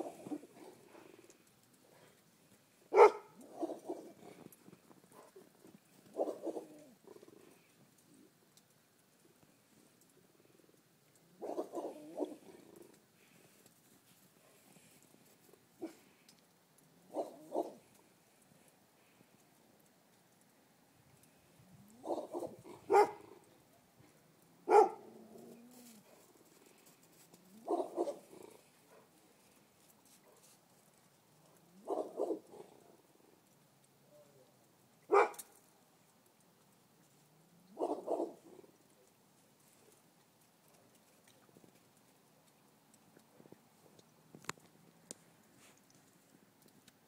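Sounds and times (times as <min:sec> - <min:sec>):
faint ticks: 0:00.2 - 0:47.0
dogs barking: 0:02.9 - 0:04.2, 0:06.1 - 0:06.9, 0:11.4 - 0:12.4, 0:17.1 - 0:17.8, 0:21.9 - 0:23.3, 0:24.6 - 0:25.0, 0:27.5 - 0:29.1, 0:31.8 - 0:32.7, 0:35.1 - 0:35.5, 0:37.7 - 0:38.6.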